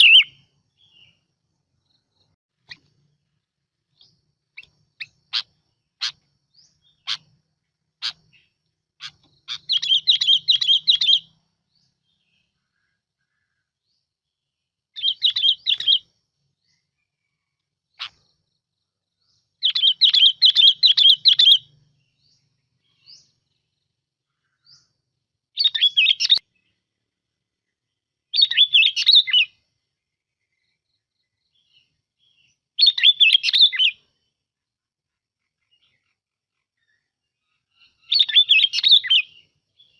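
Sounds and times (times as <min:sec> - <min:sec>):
bulbul singing warbled phrases: 0:00.0 - 0:01.3, 0:03.9 - 0:13.6, 0:14.3 - 0:16.8, 0:19.2 - 0:25.0, 0:25.6 - 0:26.8, 0:27.9 - 0:29.6, 0:30.4 - 0:34.3, 0:37.7 - 0:39.9.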